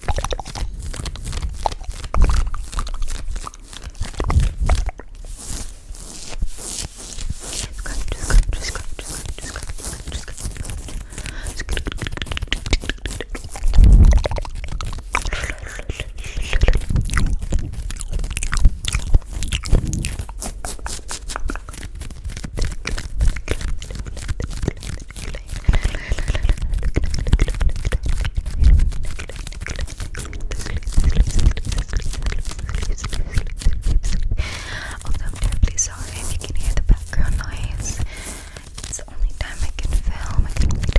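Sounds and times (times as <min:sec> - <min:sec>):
wet clicking and crackling: 0:00.0 - 0:05.2, 0:07.9 - 0:40.9
heavy low thumps: 0:19.6 - 0:20.3.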